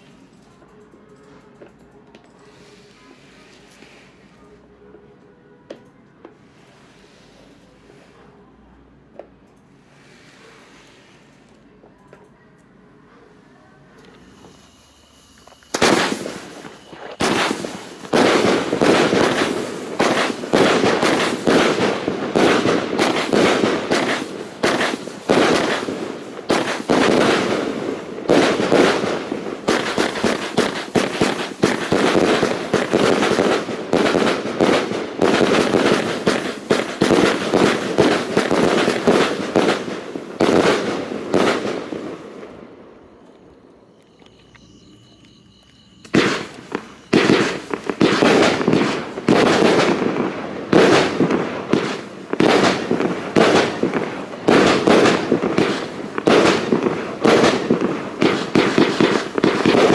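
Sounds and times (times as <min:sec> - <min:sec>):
fireworks cracking and banging: 0:14.1 - 0:59.9.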